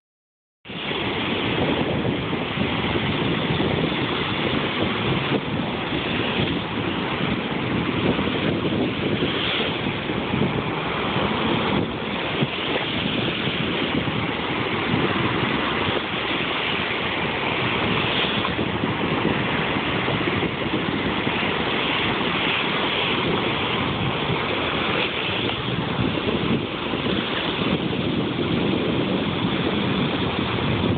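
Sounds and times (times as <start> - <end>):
rushing water: 0.6 - 30.9
wind buffeting microphone: 0.6 - 30.9.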